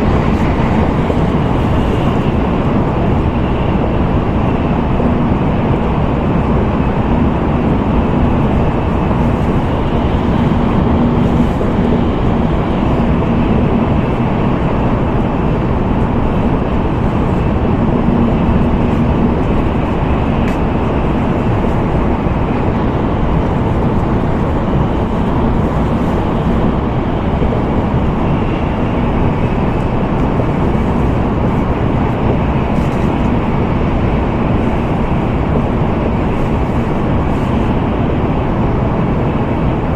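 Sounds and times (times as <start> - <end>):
faint hum: 0.0 - 39.9
train interior rumble: 0.0 - 39.9.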